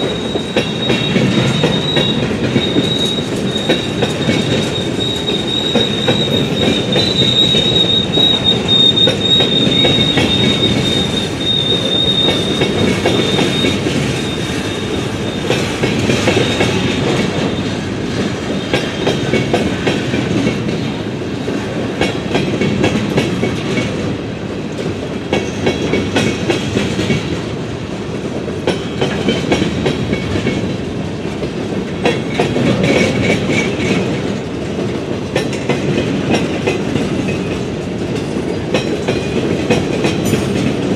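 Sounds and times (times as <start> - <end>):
wheel squeal: 0.0 - 16.8
train wheels rumbling on rail: 0.0 - 40.9.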